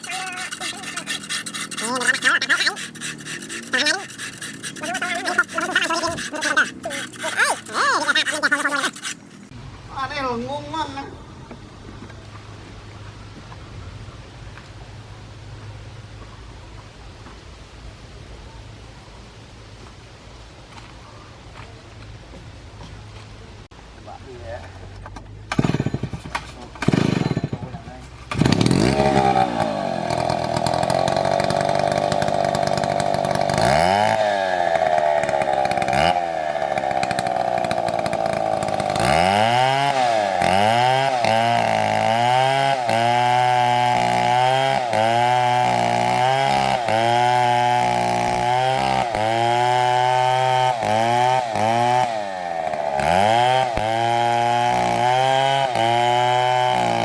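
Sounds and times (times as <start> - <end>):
chainsaw revving: 0.0 - 9.5, 26.7 - 27.6, 28.3 - 57.0.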